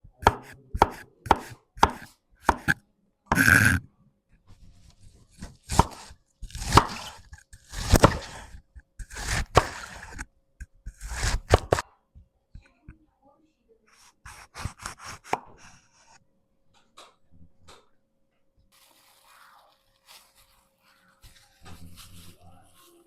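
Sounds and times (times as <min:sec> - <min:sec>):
knife chopping on cutting board: 0:00.2 - 0:03.8, 0:05.4 - 0:10.2, 0:10.9 - 0:11.8, 0:14.3 - 0:15.6.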